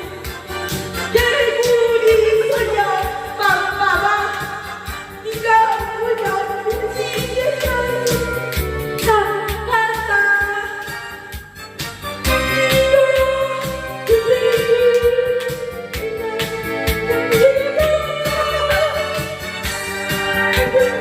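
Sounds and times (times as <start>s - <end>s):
pop song: 0.0s - 21.0s
person singing: 12.3s - 21.0s.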